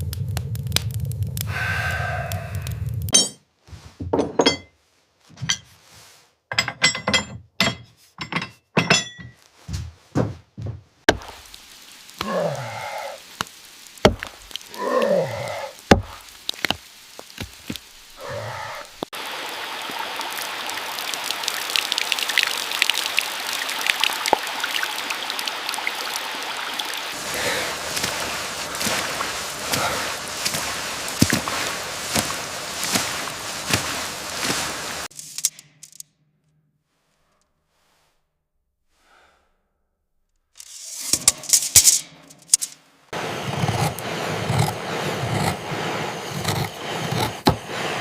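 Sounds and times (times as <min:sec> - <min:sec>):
steady rain: 0:00.0 - 0:03.2, 0:11.1 - 0:36.0, 0:41.1 - 0:48.0
sharp knocks and thunks: 0:08.8 - 0:11.3, 0:14.0 - 0:14.4, 0:15.9 - 0:16.8.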